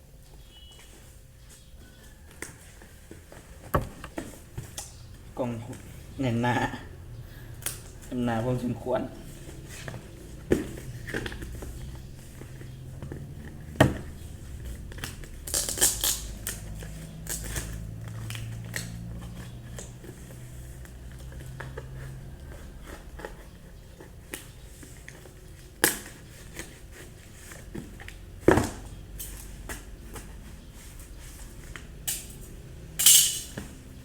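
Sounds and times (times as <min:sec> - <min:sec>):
knocks and clicks on cardboard: 0:03.7 - 0:04.3.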